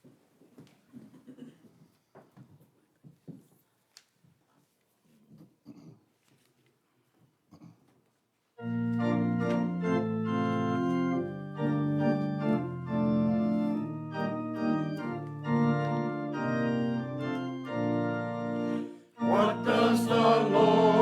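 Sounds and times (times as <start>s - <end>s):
organ playing sustained chords: 8.6s - 21.0s.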